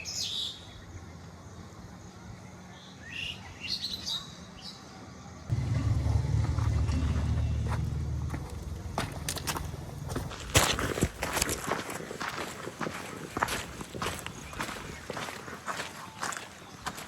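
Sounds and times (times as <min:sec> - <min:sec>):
heavy engine droning: 0:05.5 - 0:10.3
birds chirping: 0:11.9 - 0:17.0.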